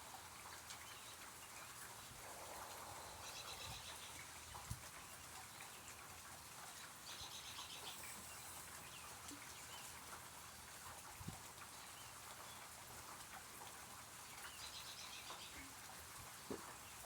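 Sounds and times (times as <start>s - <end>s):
light rain falling: 0.0s - 17.0s
bird chirping: 2.2s - 4.4s.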